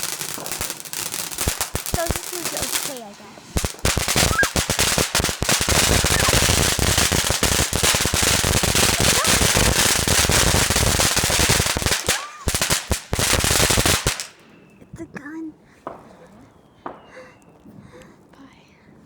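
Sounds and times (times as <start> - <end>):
firework barrage of cracks: 0.0 - 14.6.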